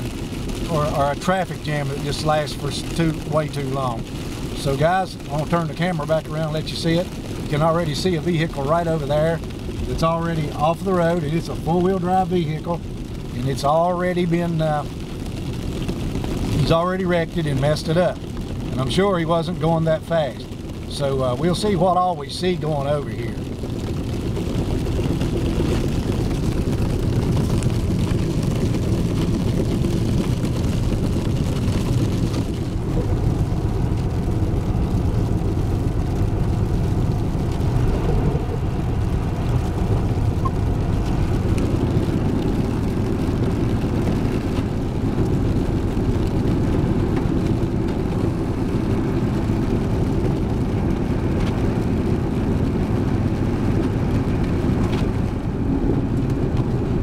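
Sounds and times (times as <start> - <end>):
truck engine and road drone: 0.0 - 57.0.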